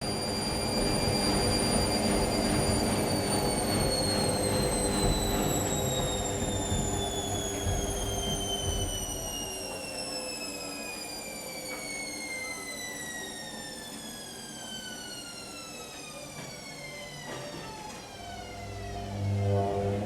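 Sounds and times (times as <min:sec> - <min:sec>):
washing machine motor whine: 0:00.0 - 0:20.0
low hum: 0:18.5 - 0:20.0.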